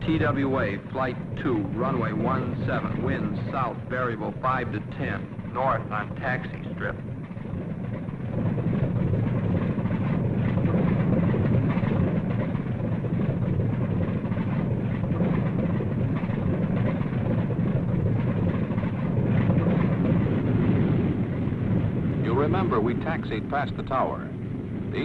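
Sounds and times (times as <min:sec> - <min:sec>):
propeller plane engines droning: 0:00.0 - 0:25.0.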